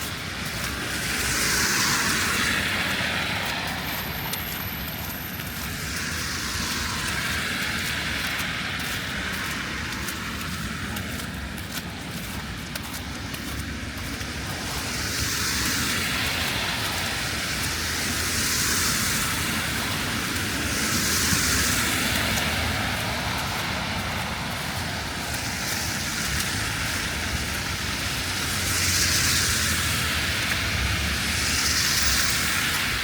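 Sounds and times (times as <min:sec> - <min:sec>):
light rain: 0:00.0 - 0:33.0
low traffic rumble: 0:00.0 - 0:33.0
tyre hiss of passing cars: 0:00.0 - 0:33.0.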